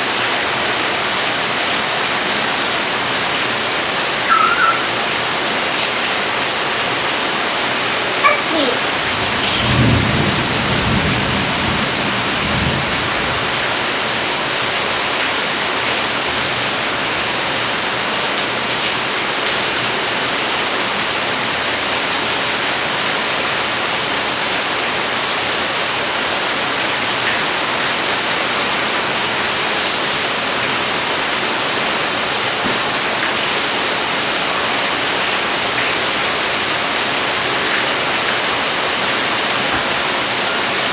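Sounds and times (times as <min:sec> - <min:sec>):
heavy rain falling: 0:00.0 - 0:40.9
low rumble of thunder: 0:09.1 - 0:13.7.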